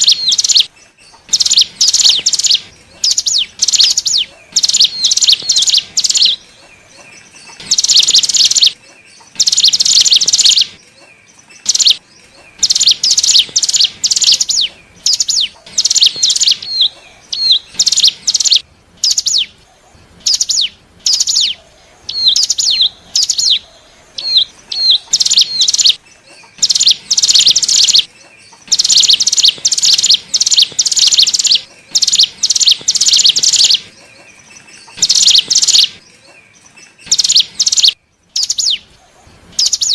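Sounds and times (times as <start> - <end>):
bird buzzy trills: 0.0 - 19.6, 20.2 - 39.9
bird chip notes: 24.8 - 34.0.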